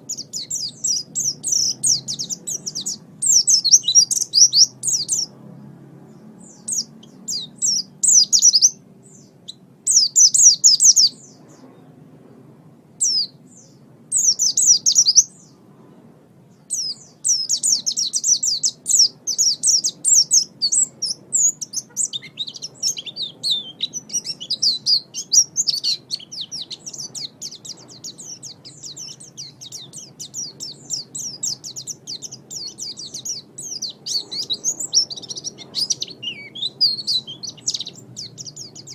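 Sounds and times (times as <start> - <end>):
bird twittering song: 0.0 - 12.0, 13.0 - 15.7, 16.5 - 38.9.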